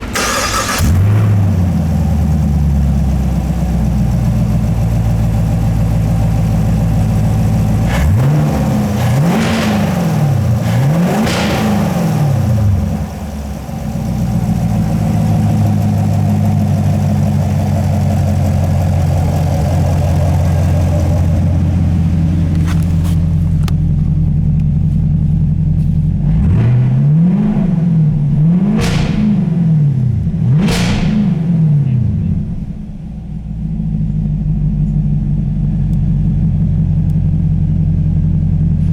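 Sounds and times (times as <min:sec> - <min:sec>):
engine revving blips: 0:00.0 - 0:01.6, 0:07.8 - 0:13.3, 0:25.8 - 0:33.4
car engine starting and idling: 0:00.0 - 0:38.9.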